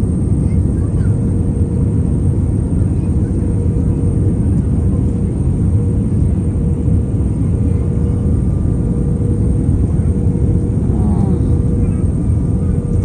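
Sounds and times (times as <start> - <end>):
aircraft cabin engine rumble: 0.0 - 13.0
faint hum: 7.7 - 13.0.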